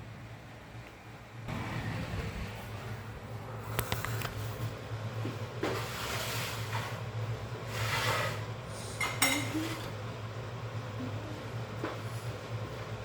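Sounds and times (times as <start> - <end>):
steady low hum: 0.0 - 13.0
dishes and cutlery scraping: 7.7 - 10.0.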